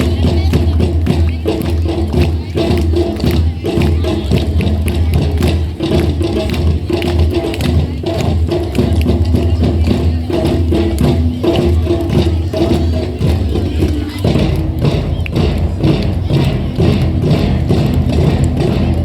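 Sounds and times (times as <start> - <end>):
drummers playing together: 0.0 - 19.0
low drum boom: 11.1 - 19.0.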